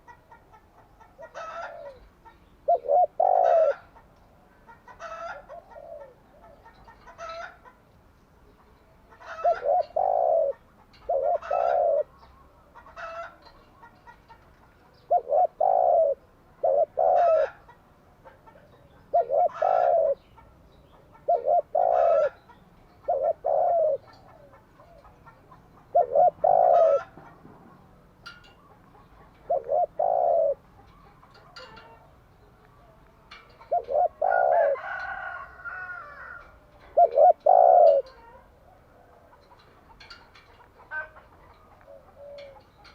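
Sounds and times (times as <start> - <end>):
dove cooing: 0.0 - 7.7, 9.0 - 32.2, 32.8 - 42.9.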